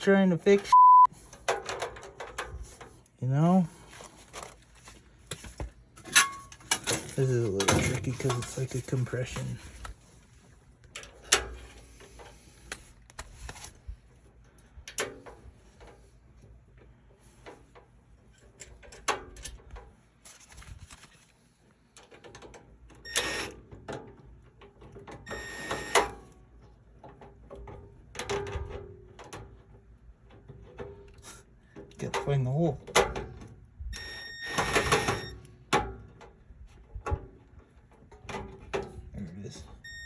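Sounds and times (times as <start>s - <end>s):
metallic clicks taps and scraping: 10.8s - 13.6s.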